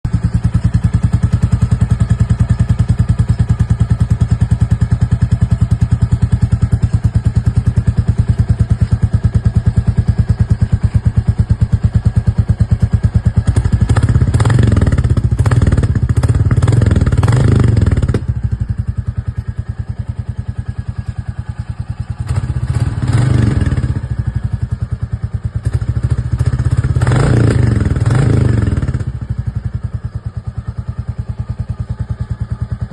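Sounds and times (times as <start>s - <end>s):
motorcycle engine idling and revving: 0.0s - 32.9s.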